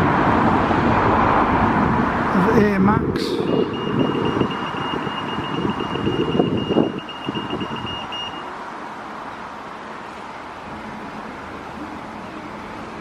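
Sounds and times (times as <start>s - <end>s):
electronic warning beeper: 3.3s - 8.5s.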